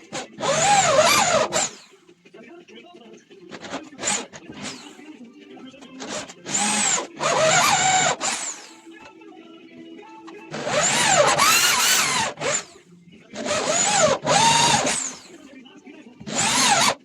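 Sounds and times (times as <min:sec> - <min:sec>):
power drill motor whine: 0:00.0 - 0:02.0, 0:03.5 - 0:05.1, 0:05.8 - 0:09.1, 0:10.3 - 0:15.4, 0:16.2 - 0:17.0.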